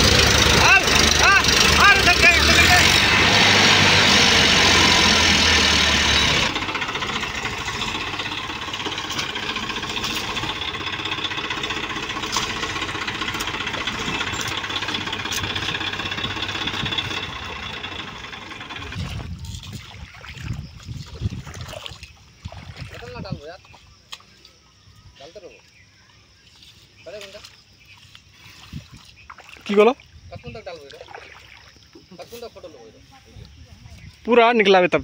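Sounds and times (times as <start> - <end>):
tractor diesel engine running: 0.0 - 19.8.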